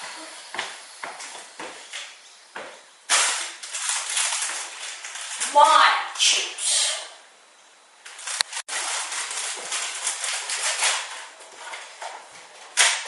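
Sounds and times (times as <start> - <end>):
chip bag crinkling: 3.1 - 5.6, 8.0 - 12.0.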